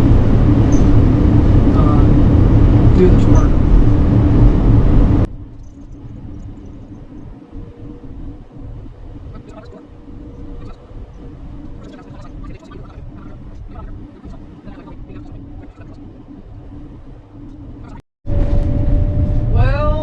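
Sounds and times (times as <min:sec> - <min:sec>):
faint steady hum: 0:00.0 - 0:18.0
engine and tyre rumble: 0:00.0 - 0:20.0.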